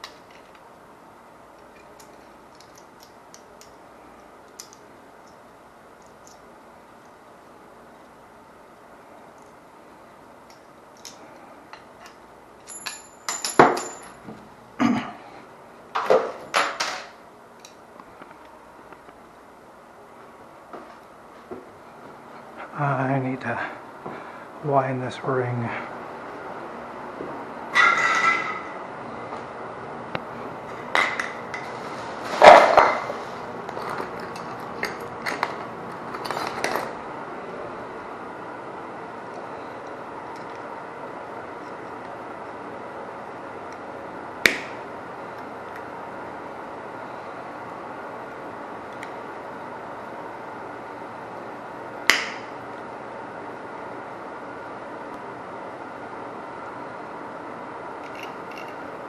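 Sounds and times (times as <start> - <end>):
metal tools clattering and scraping: 27.8 - 28.7.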